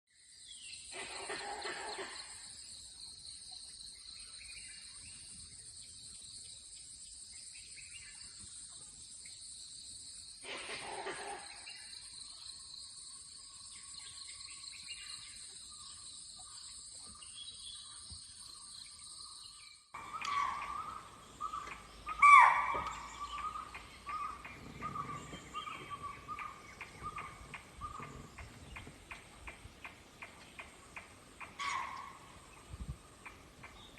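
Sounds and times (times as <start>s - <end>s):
bird calls: 0.5s - 2.6s, 13.8s - 33.9s
sharp loud bird call: 20.0s - 25.1s
rapid ticking bird calls: 20.0s - 33.9s.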